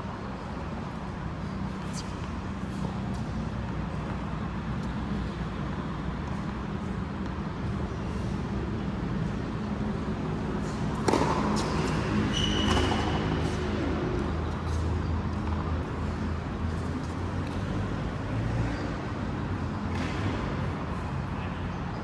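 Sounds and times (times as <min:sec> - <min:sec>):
shoe squeak: 0:10.6 - 0:13.8
ball knocking on racket: 0:11.0 - 0:11.5.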